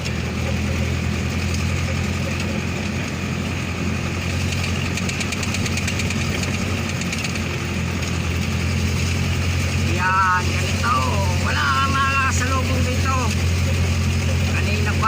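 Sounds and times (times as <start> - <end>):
vehicle engine running steadily: 0.0 - 15.0.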